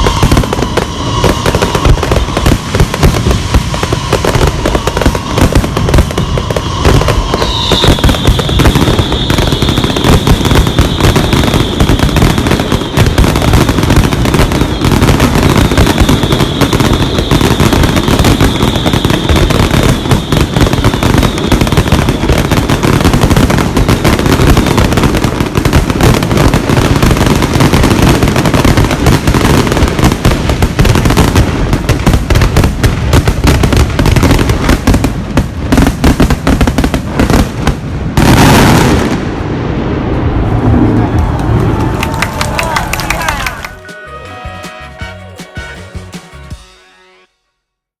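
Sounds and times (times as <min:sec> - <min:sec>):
high whistle: 0:00.0 - 0:22.7, 0:43.3 - 0:47.5
fireworks bangs and crackling: 0:00.0 - 0:46.6.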